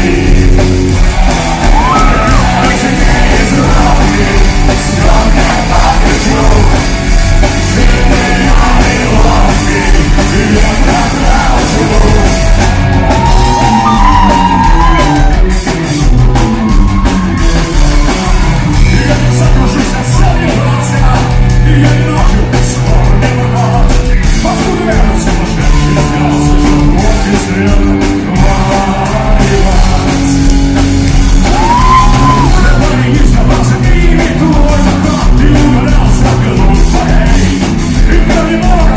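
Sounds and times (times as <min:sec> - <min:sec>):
punk rock band playing: 0:00.0 - 0:38.9
singer shouting: 0:01.2 - 0:04.1, 0:10.8 - 0:15.5, 0:31.5 - 0:33.0.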